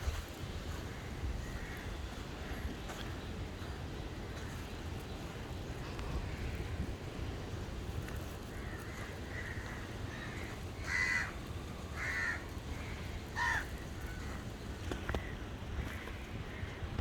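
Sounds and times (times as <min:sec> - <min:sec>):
low outdoor rumble: 0:00.0 - 0:17.0
bird harsh calls: 0:08.5 - 0:11.4, 0:12.0 - 0:14.4.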